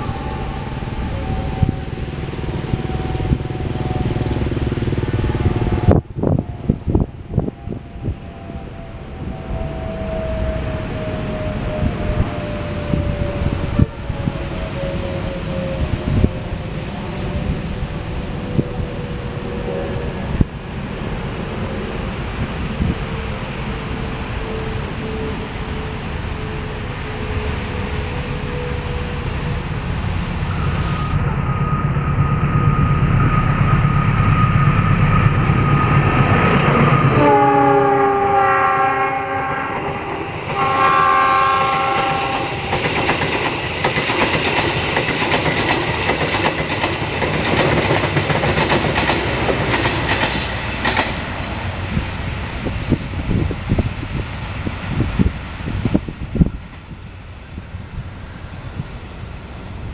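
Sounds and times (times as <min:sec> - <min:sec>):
train horn blasts: 0:00.0 - 0:06.4, 0:30.5 - 0:42.8
diesel locomotive rumble: 0:00.0 - 0:59.9
train wheels clattering over rail joints: 0:42.0 - 0:52.2.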